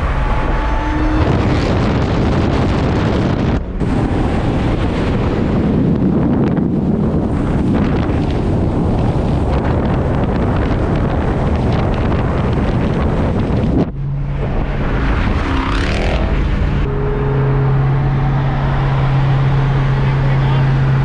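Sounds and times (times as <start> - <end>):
rising and falling whine: 0.0 - 8.3, 12.8 - 21.0
car engine drone: 0.0 - 21.0
loud wind rush: 0.0 - 21.0.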